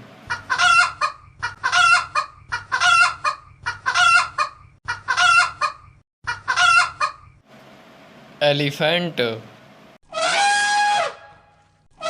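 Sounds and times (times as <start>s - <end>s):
chicken squawking: 0.3s - 7.4s, 10.1s - 12.0s.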